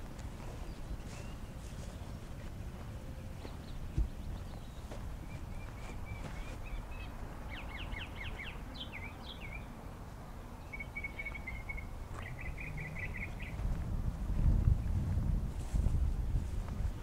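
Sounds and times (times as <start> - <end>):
songbirds trilling: 0.1 - 13.6
low microphone rumble: 12.1 - 17.0.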